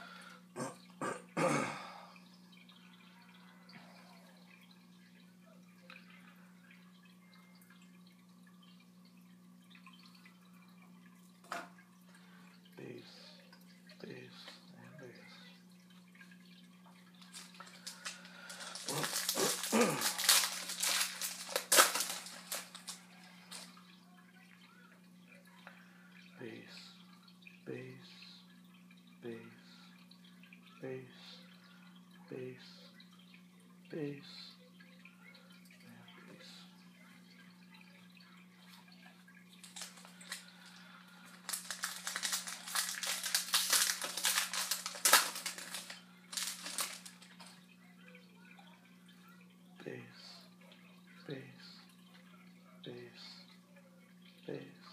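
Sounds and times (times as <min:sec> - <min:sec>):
crackling rustling noise: 0:16.2 - 0:24.0, 0:38.7 - 0:47.7
foil card pack crinkling: 0:17.2 - 0:23.7, 0:39.6 - 0:40.5, 0:41.2 - 0:47.5.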